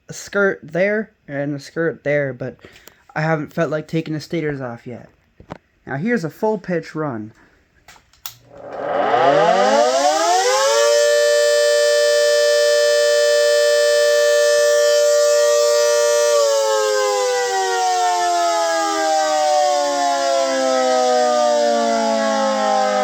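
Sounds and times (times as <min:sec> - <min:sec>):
two-tone mechanical siren: 0:08.5 - 0:23.0.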